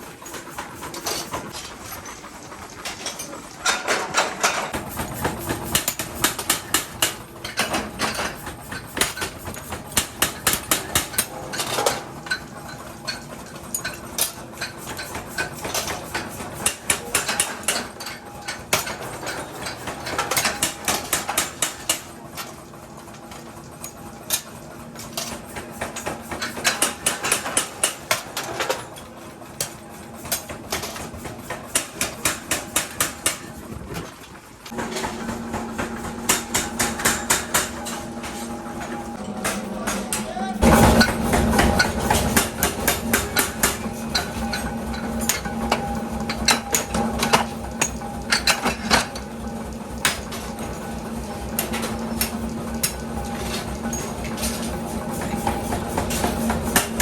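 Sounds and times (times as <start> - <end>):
hammer striking metal: 35.8 - 38.4, 39.2 - 49.0.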